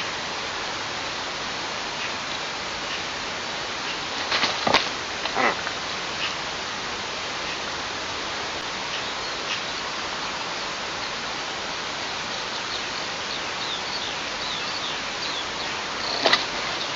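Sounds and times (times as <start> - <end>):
steady outdoor hiss: 0.0 - 16.9
small bird calling: 5.2 - 6.4.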